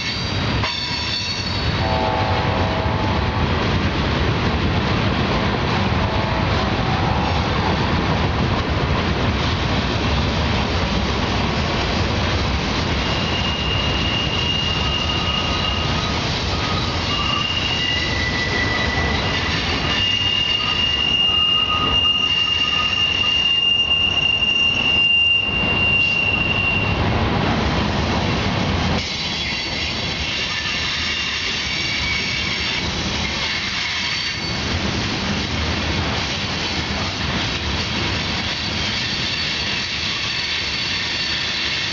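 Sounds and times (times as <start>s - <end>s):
train wheels squealing: 0.0s - 1.9s, 12.9s - 27.0s, 29.0s - 34.7s, 38.0s - 41.9s
freight train wheels rumbling: 0.0s - 41.9s.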